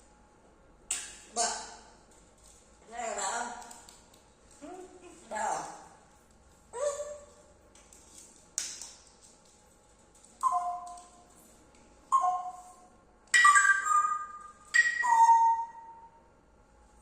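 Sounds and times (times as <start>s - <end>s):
parrot whistling: 10.4s - 11.1s, 12.1s - 16.2s
parrot squawk: 13.4s - 16.0s.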